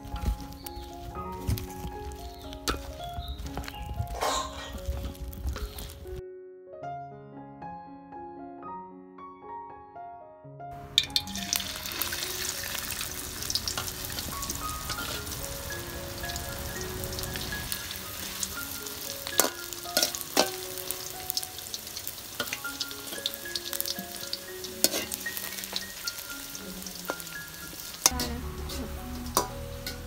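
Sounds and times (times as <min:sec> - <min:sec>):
food sizzling in hot oil: 0:00.0 - 0:06.2, 0:10.8 - 0:30.0
soft plucked background music: 0:00.0 - 0:06.3, 0:10.7 - 0:30.0
utensil clacking against pan: 0:19.2 - 0:25.8.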